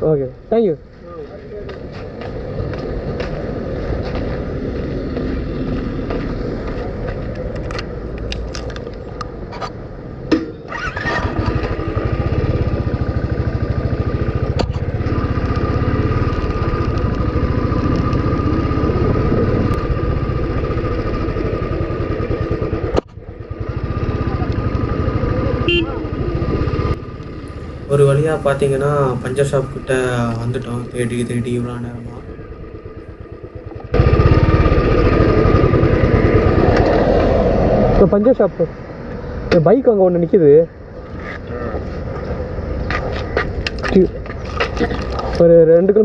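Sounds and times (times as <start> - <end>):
motorcycle engine running: 10.6 - 38.0
wind rumble on microphone: 16.4 - 20.9.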